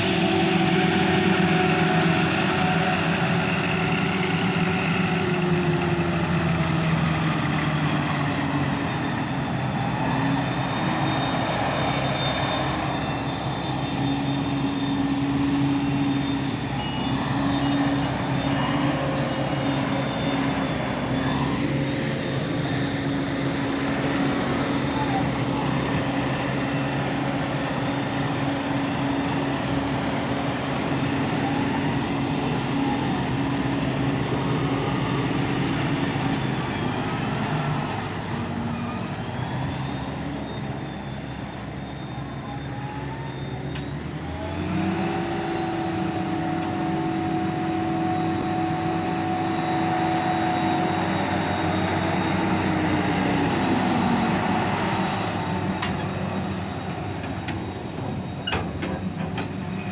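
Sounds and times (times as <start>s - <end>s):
harvester engine and chopping drum: 43.3s - 59.9s.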